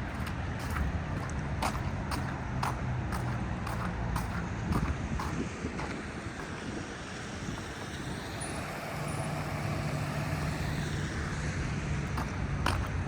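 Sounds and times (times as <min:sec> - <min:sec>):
tyre noise on wet road: 0:00.0 - 0:13.0
vehicle engine hum passing: 0:00.0 - 0:13.0.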